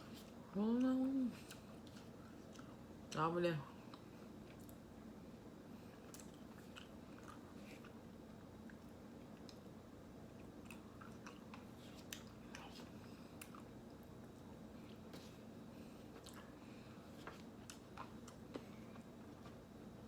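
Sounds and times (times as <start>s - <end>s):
low room hum: 0.0s - 20.0s
wet mouth clicks chewing: 6.1s - 8.0s.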